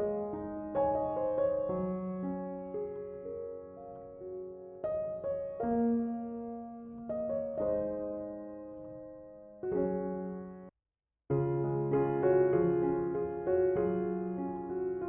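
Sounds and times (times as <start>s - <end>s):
slow piano music: 0.0s - 10.7s, 11.3s - 15.0s.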